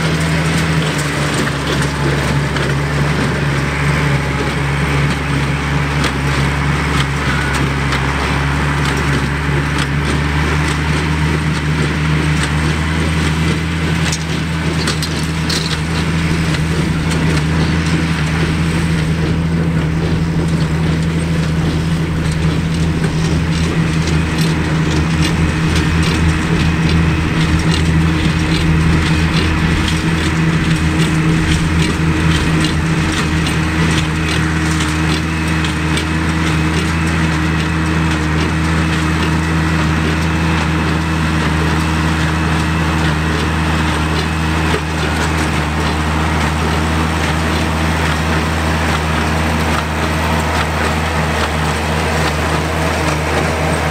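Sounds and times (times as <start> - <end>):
tractor engine under load: 0.0 - 53.9.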